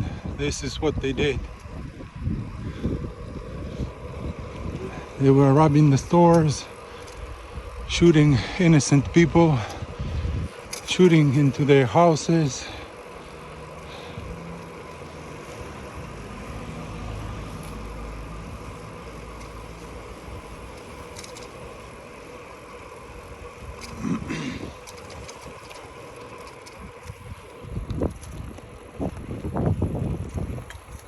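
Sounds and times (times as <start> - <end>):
low rumbling gusts: 0.0 - 31.0
vehicle engine running: 0.0 - 31.0.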